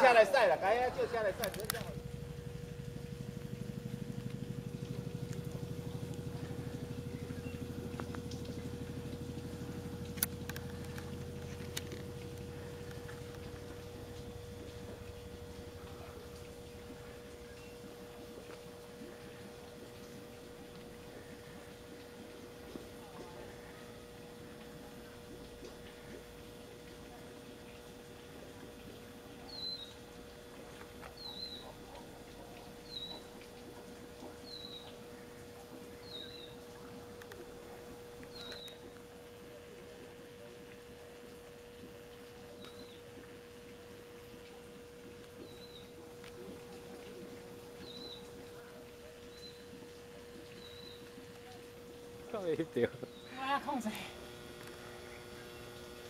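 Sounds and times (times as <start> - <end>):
faint steady hum: 0.0 - 56.0
engine running with pulsing beat: 1.0 - 23.1
bird calling: 3.6 - 18.5, 29.4 - 30.1, 30.7 - 33.5, 34.2 - 35.3, 38.2 - 39.0, 45.4 - 51.6.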